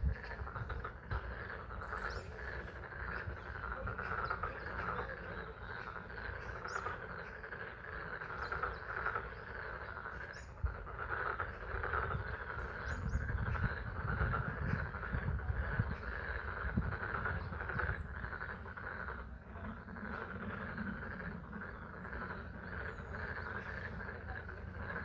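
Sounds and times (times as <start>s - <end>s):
chorus of frogs calling: 0.0s - 25.0s.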